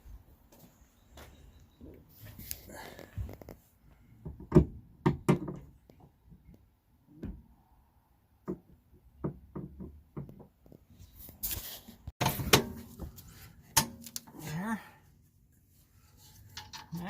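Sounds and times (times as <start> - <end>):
knocks and clunks of hardware: 4.2 - 5.8, 12.2 - 13.1.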